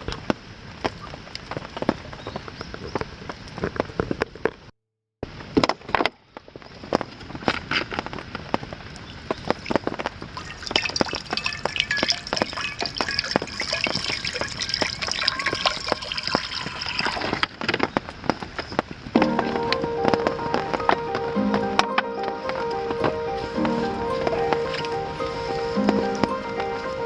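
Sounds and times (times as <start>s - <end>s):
campfire crackling: 0.0s - 4.5s, 5.3s - 27.0s
food sizzling: 9.4s - 17.6s, 19.2s - 27.0s
music: 19.2s - 27.0s.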